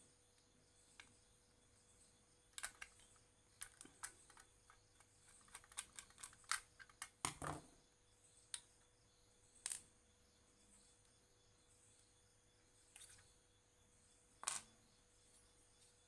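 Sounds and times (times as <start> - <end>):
faint steady hum: 0.0 - 16.0
small parts and tools clicking: 2.5 - 7.7, 9.6 - 9.9, 14.4 - 14.7.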